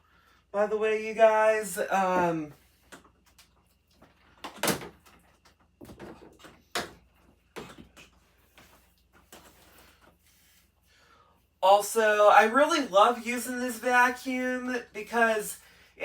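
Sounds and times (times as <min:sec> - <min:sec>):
objects knocking and clunking: 0:02.0 - 0:10.2.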